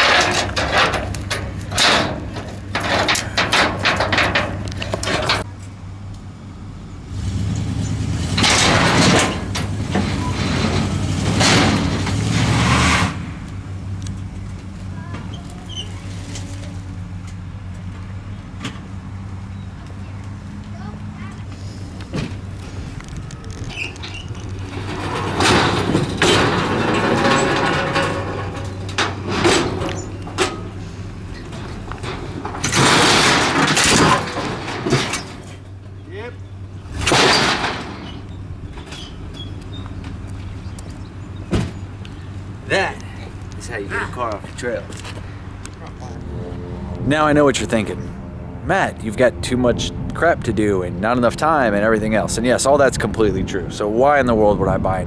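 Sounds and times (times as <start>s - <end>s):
sharp knocks and clanks: 0.0s - 5.5s, 7.8s - 15.6s, 21.6s - 43.5s
truck engine running: 0.0s - 55.0s.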